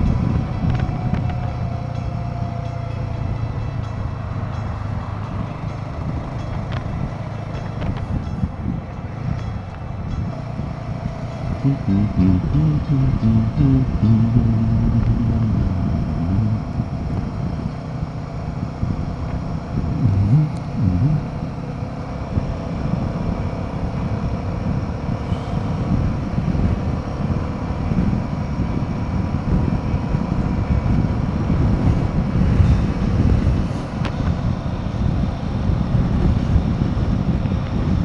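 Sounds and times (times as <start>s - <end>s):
motorcycle engine running: 0.0s - 38.0s
wind rushing over microphone: 12.4s - 38.0s.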